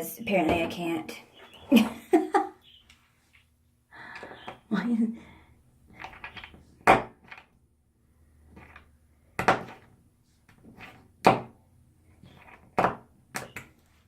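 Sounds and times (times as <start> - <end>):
hard objects knocking: 8.5 - 11.6, 12.2 - 13.8.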